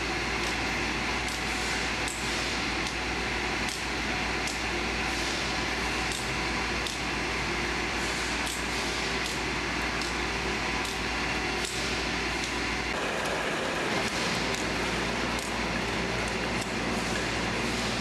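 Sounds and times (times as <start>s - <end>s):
bottling machine running: 5.7s - 18.0s.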